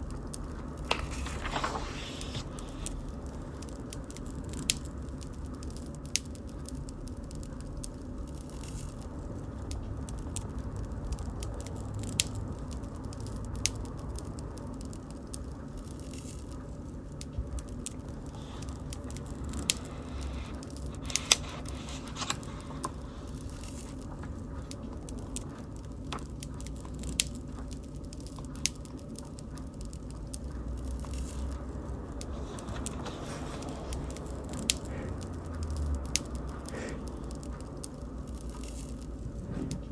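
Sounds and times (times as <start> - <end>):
fire popping and crackling: 0.0 - 39.9
bonfire flames rushing: 0.1 - 39.9.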